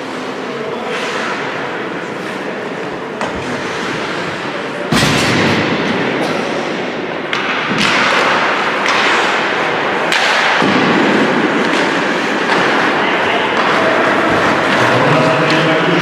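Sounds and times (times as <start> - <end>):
skates scraping ice: 0.0 - 6.3, 7.2 - 16.0
sharp knocks of hockey sticks: 7.3 - 9.5, 10.1 - 10.8.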